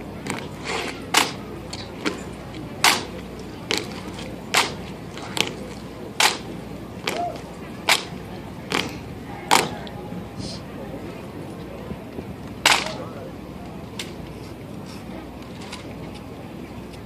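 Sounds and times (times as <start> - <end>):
rifles slapping and knocking: 1.1 - 9.7.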